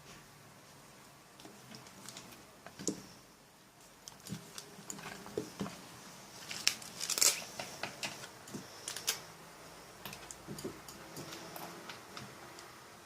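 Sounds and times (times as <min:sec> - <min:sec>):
crinkling rustles: 0:01.4 - 0:03.1, 0:03.8 - 0:09.3.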